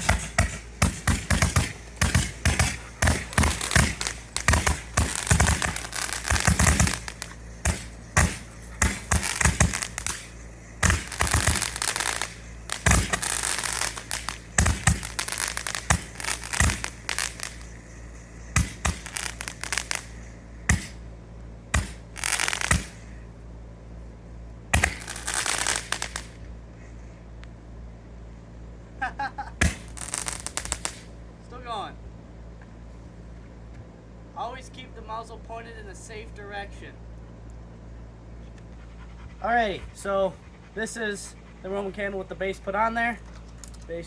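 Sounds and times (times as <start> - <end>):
firework shots and crackling: 0.0 - 21.1, 21.7 - 23.2, 24.7 - 26.4, 29.5 - 31.2
low hum: 0.0 - 44.0.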